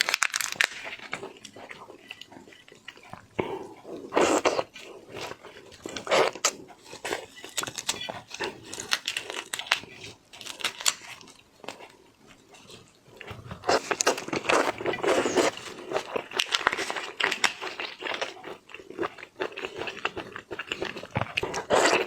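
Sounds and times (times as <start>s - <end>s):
small crunches: 0.0s - 1.5s, 5.8s - 11.8s
slurping: 1.4s - 8.9s.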